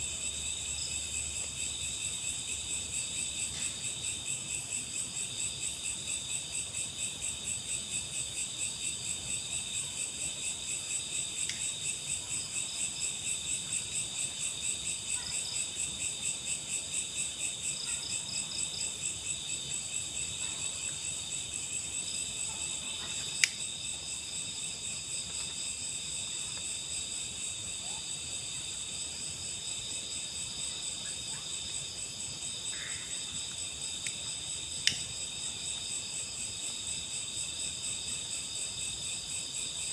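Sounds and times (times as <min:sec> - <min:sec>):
night insects trilling: 0:00.0 - 0:39.9
sharp click: 0:34.8 - 0:35.1.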